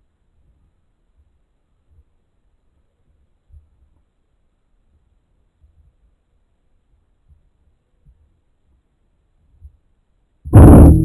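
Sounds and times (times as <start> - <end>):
faint low thumps: 10.5 - 11.0.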